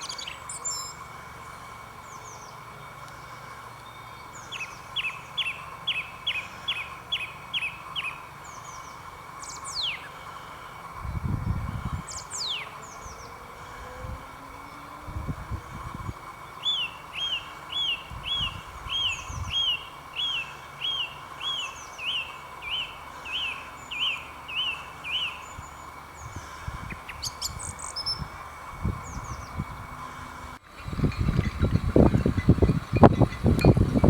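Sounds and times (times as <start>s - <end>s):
songbird whistling notes: 0.0s - 1.4s, 2.0s - 10.4s, 11.2s - 14.0s, 16.4s - 29.7s.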